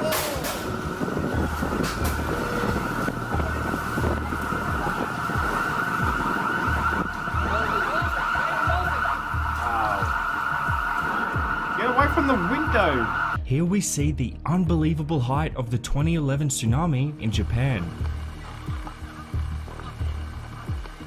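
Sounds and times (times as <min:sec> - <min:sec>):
low rumbling: 0:00.0 - 0:21.0
steady siren tone: 0:00.4 - 0:13.4.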